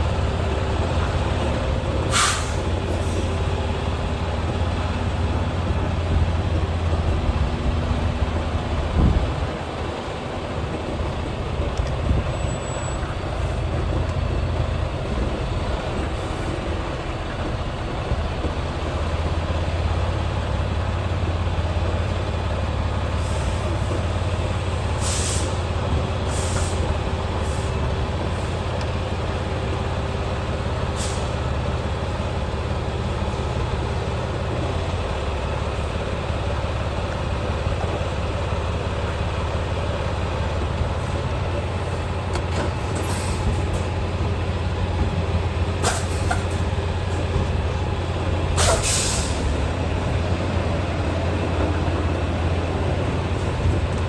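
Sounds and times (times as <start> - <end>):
diesel truck engine running: 0.0 - 54.0
short air hisses: 2.1 - 3.3, 25.0 - 25.6, 26.3 - 26.8, 45.8 - 46.6, 48.6 - 49.6.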